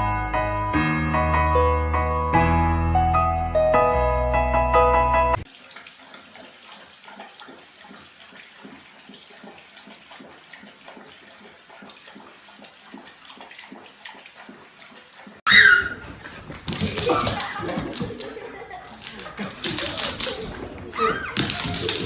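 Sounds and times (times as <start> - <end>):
water sloshing and splashing: 5.4 - 22.0.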